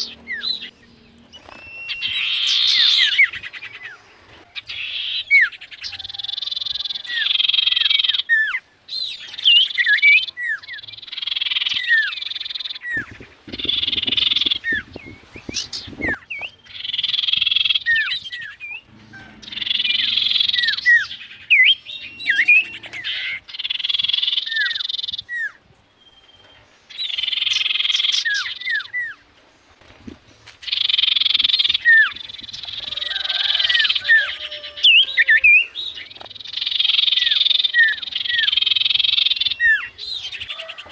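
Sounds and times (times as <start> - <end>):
owl whistled notes: 18.6 - 25.6
owl screeching: 18.7 - 25.0, 32.8 - 35.9.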